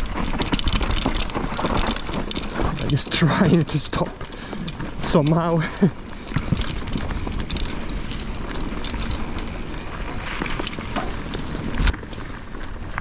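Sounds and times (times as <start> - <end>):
bike rattling and clicking: 0.0 - 13.0
tyre and wind noise: 0.0 - 13.0.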